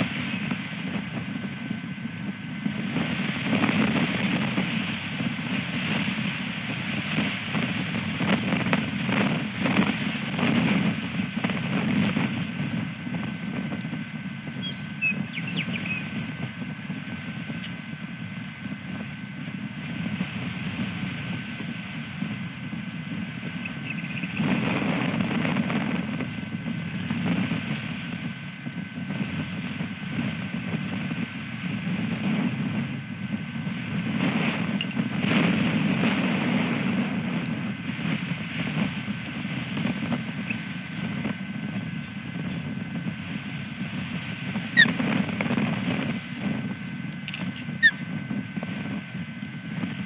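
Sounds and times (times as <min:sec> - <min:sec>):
thin electronic whine: 0:00.0 - 0:50.0
wind gusting on microphone: 0:00.0 - 0:50.0
faint high bird chirps: 0:14.2 - 0:16.2, 0:23.3 - 0:24.4, 0:47.8 - 0:48.1
loud sharp osprey chirp: 0:14.2 - 0:16.2, 0:23.3 - 0:24.4, 0:47.7 - 0:48.1.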